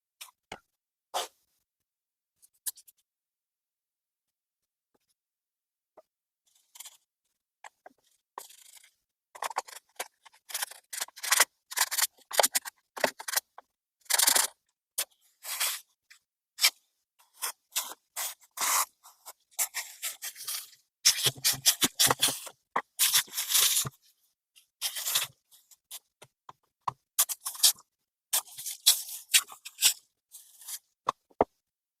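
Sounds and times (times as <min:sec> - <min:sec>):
small parts and tools scraping: 0:06.5 - 0:07.1, 0:07.7 - 0:15.9, 0:16.6 - 0:26.1, 0:27.2 - 0:31.2.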